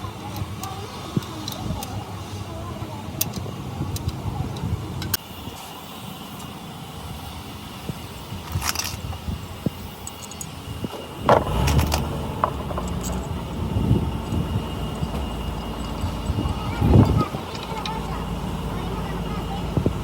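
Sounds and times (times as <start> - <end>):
low workshop rumble: 9.2 - 20.0
sharp knocks and clinks: 10.0 - 19.0.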